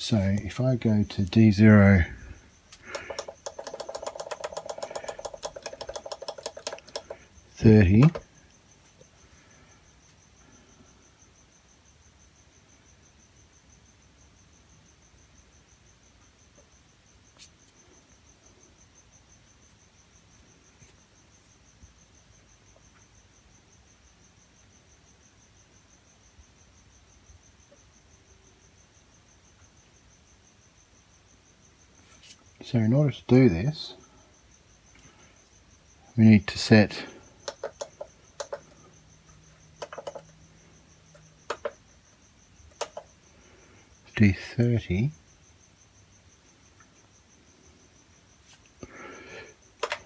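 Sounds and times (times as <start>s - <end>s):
faint clicks: 2.7s - 7.3s, 37.4s - 38.8s, 42.7s - 43.1s.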